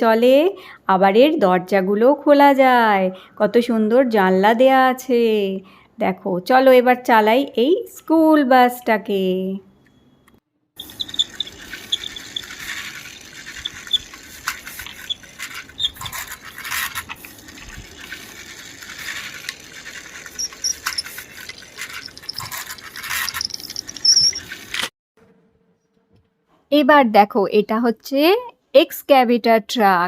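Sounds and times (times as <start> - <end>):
high squeaks: 10.8 - 17.2, 19.8 - 24.9
toy bus clicking rattle: 10.8 - 24.9.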